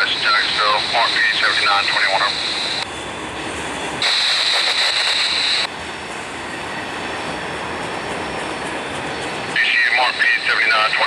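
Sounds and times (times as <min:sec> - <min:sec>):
train wheels rolling on rails: 0:02.8 - 0:10.1.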